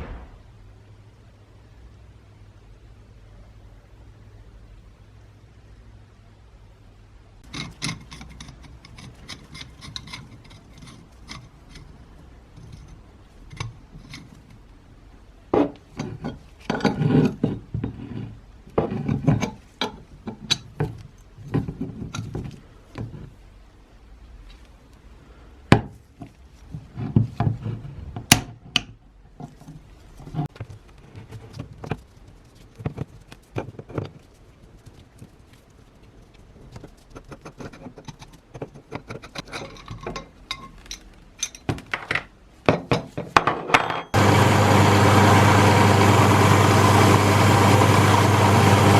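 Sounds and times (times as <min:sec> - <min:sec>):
tools scraping and rubbing: 0:07.4 - 0:14.6, 0:15.6 - 0:23.4, 0:29.4 - 0:41.7.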